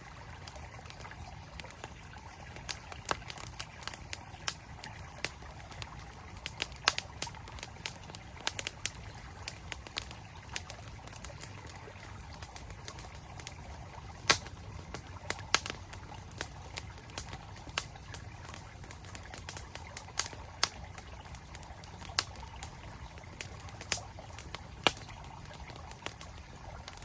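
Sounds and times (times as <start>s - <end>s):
campfire crackling and popping: 0.0s - 27.0s
flowing stream: 0.0s - 27.0s.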